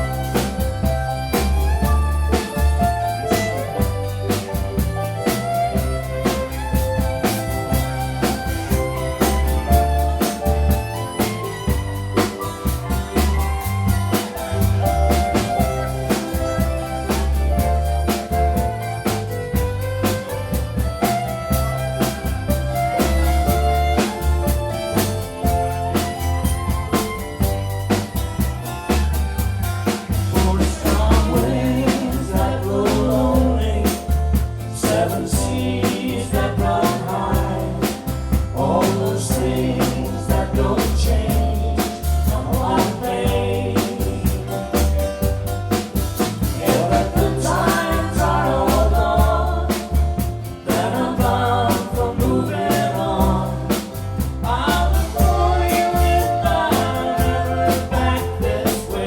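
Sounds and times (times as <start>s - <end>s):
bass line: 0.0s - 59.0s
drum kit beat: 0.0s - 59.0s
person singing: 30.3s - 44.8s, 46.5s - 59.0s.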